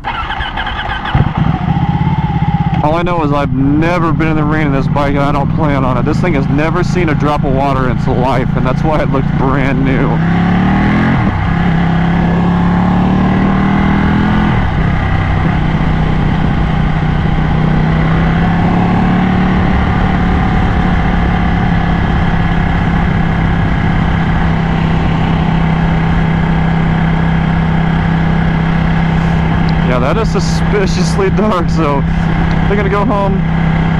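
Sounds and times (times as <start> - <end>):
motorcycle engine: 0.0 - 33.9
wind rushing: 19.6 - 33.9.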